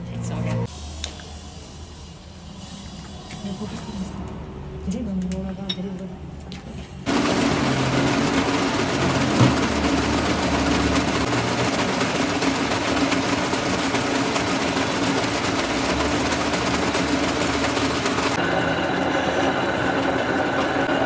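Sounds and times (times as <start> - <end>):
lathe running: 7.1 - 21.0.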